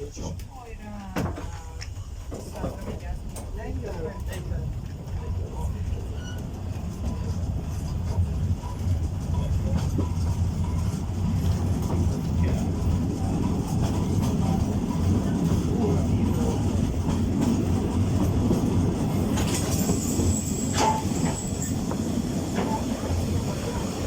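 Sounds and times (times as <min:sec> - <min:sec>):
train rumbling along track: 0:00.0 - 0:24.0
wheels clicking over rail joints: 0:00.1 - 0:24.0
high wheel squeal: 0:19.8 - 0:21.9.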